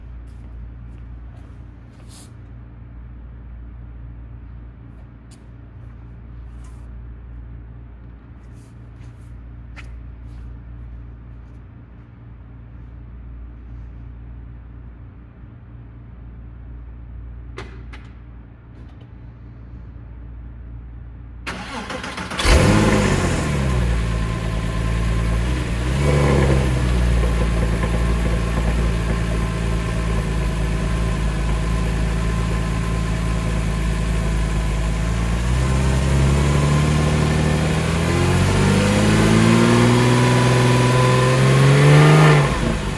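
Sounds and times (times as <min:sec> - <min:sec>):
low background hum: 0:00.0 - 0:22.2
car starter cranking: 0:21.5 - 0:40.0
car engine idling and revving: 0:21.5 - 0:42.9.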